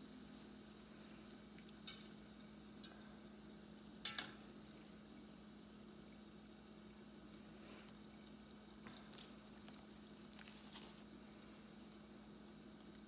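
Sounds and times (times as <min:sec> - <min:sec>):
oil sizzling and bubbling: 0:00.0 - 0:13.0
metal spatula clicking on pot: 0:04.0 - 0:04.4.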